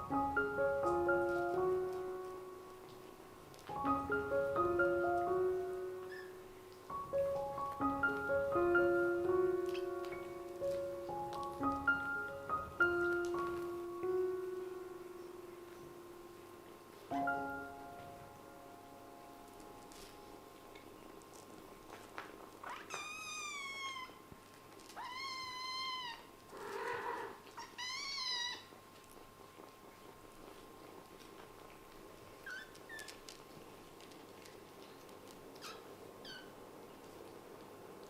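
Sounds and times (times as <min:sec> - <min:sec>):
kitten meowing: 0:22.7 - 0:24.2, 0:25.0 - 0:28.8.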